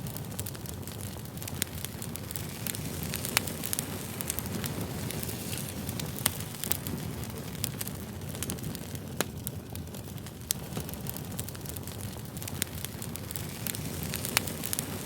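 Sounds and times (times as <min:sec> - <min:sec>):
burning wood crackling and popping: 0:00.0 - 0:15.0
rumble of flames: 0:00.0 - 0:15.0.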